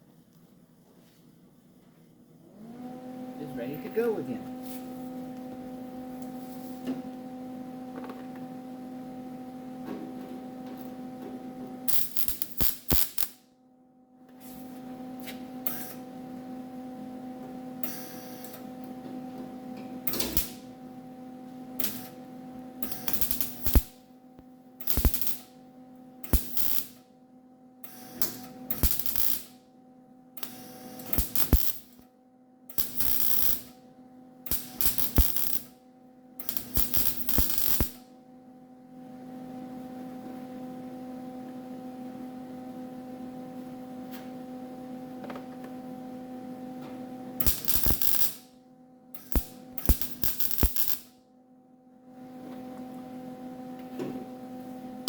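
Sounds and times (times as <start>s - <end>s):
steady electrical hum: 3.2s - 13.6s, 14.4s - 39.9s, 47.2s - 52.1s
welder arc bursts: 11.9s - 13.4s, 22.8s - 24.0s, 24.8s - 25.5s, 26.2s - 27.0s, 27.8s - 29.6s, 30.4s - 32.0s, 32.7s - 33.7s, 34.5s - 35.8s, 36.4s - 38.0s, 47.4s - 48.5s, 49.2s - 51.2s.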